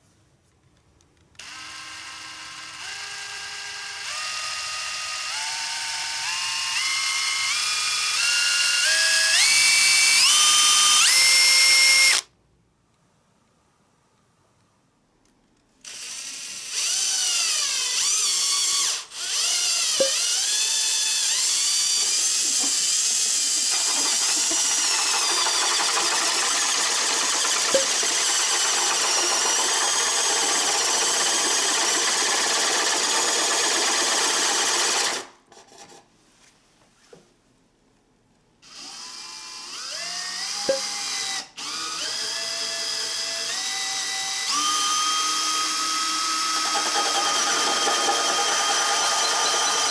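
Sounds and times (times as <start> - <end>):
cordless drill motor whining: 1.4 - 12.3, 15.8 - 35.2, 38.6 - 49.9.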